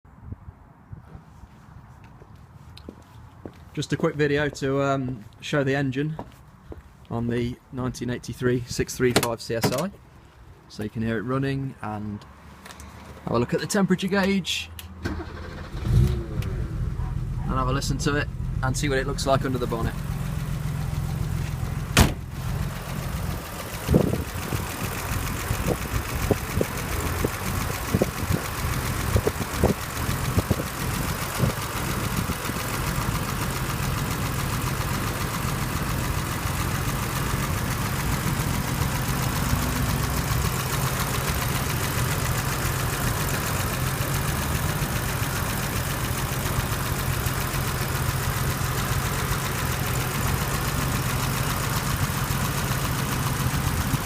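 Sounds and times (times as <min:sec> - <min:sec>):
car engine idling: 0:15.0 - 0:54.0.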